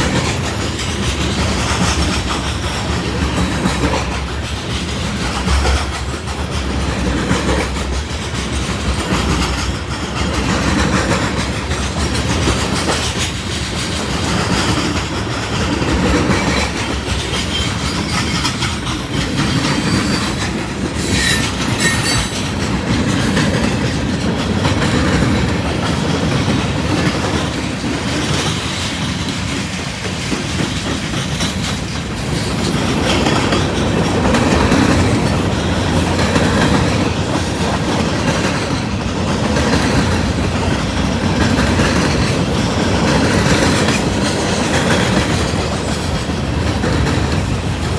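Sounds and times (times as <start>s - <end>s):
train wheels clattering: 0.0s - 47.9s
high wheel squeals: 19.4s - 22.6s.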